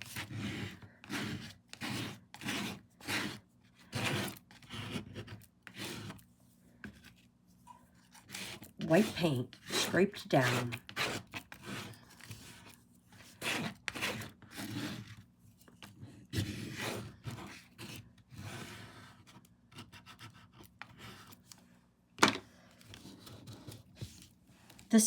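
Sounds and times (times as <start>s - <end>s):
knife scraping paint on canvas: 0.0s - 6.2s, 8.0s - 15.2s, 15.8s - 21.4s.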